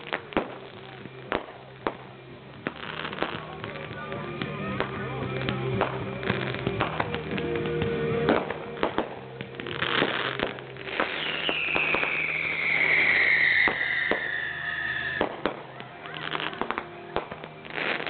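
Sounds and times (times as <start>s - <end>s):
fireworks popping and crackling: 0.0s - 18.0s
whistling firework: 6.8s - 18.0s.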